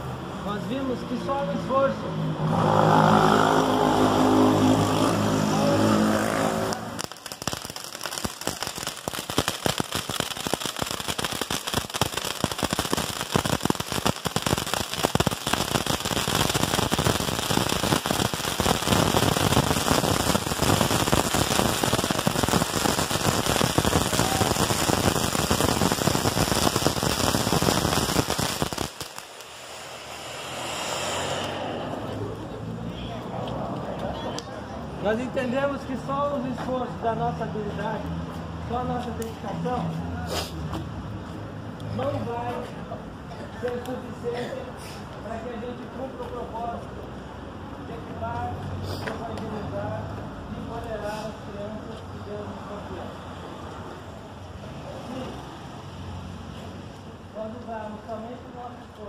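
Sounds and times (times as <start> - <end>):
bonfire crackling: 4.0 - 36.5.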